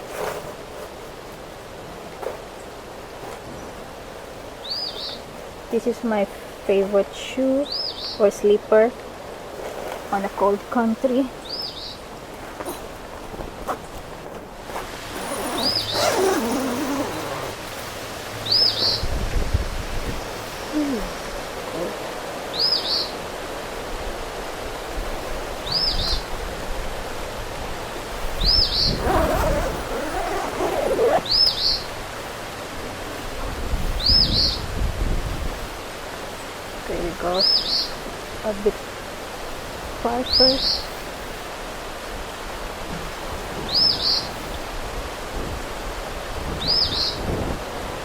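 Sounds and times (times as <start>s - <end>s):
rain and wind hiss: 0.0s - 48.0s
bird chirp: 15.2s - 17.5s.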